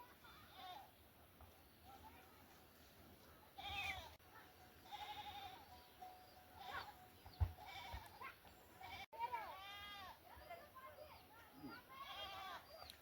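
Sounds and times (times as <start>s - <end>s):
goats bleating: 4.8s - 5.7s, 6.6s - 7.0s, 7.6s - 8.2s, 8.8s - 10.2s, 11.9s - 12.7s.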